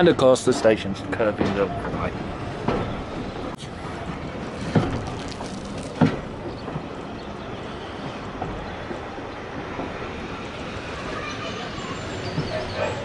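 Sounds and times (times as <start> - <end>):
railway carriage rumbling on track: 0.0 - 13.0
sharp knocks of wheels: 4.5 - 10.1.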